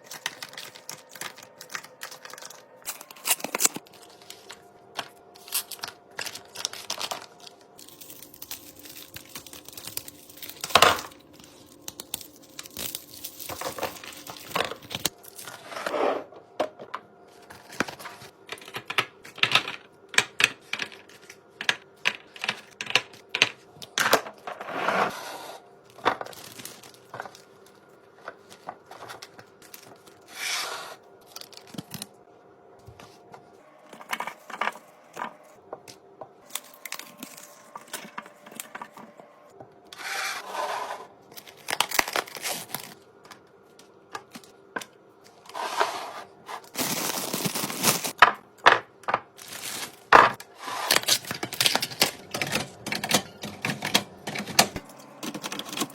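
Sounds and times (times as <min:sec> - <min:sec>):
packaging rustling and crinkling: 0:00.0 - 0:15.6, 0:25.9 - 0:30.3, 0:36.4 - 0:39.0, 0:41.3 - 0:43.0, 0:46.5 - 0:48.2, 0:49.3 - 0:55.9
items clicking and tapping: 0:16.5 - 0:24.5, 0:46.7 - 0:55.9.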